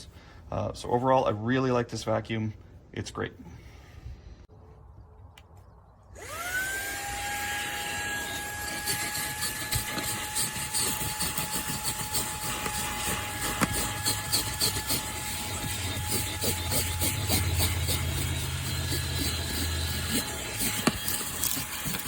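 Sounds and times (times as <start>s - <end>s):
handheld vacuum running: 6.2s - 22.0s.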